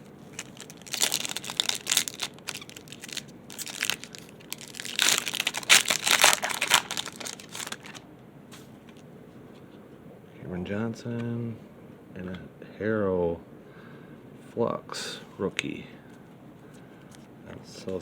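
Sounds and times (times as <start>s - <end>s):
wrapper tearing and crinkling: 0.2s - 8.0s.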